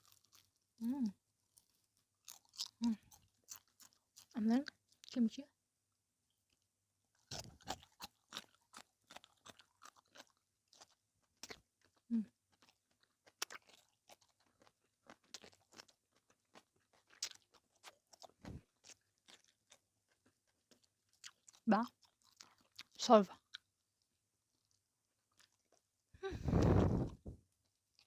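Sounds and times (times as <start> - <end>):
crunching and chewing food: 0.0 - 5.3, 6.3 - 28.0
low mouth sound: 26.2 - 27.4.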